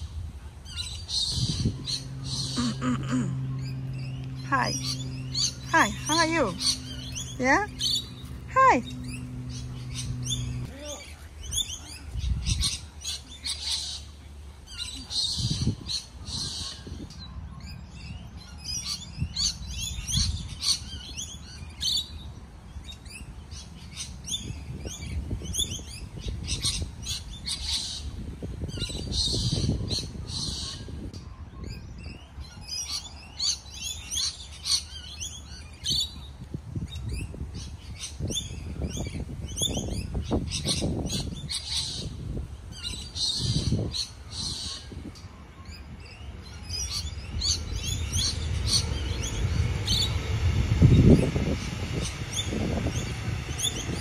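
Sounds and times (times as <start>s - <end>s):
low rumble: 0.0s - 13.0s, 42.0s - 54.0s
birds chirping: 0.0s - 54.0s.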